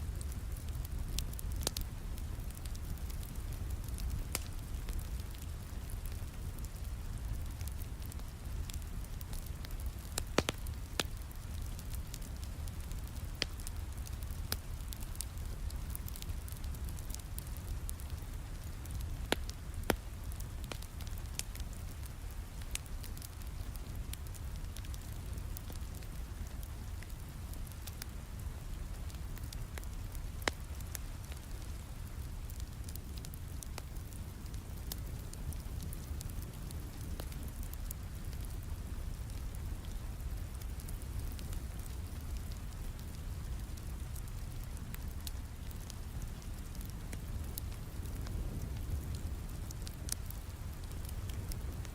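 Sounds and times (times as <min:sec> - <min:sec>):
steady rain: 0:00.0 - 0:51.9
wood fire crackling: 0:00.0 - 0:51.9
sharp pops from fire: 0:00.2 - 0:28.1, 0:29.0 - 0:51.9.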